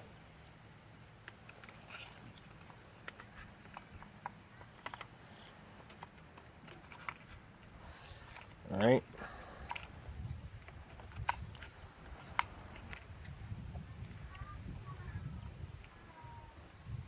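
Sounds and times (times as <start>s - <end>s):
small parts clicking and tapping: 1.2s - 8.6s, 9.6s - 10.0s, 10.6s - 13.4s.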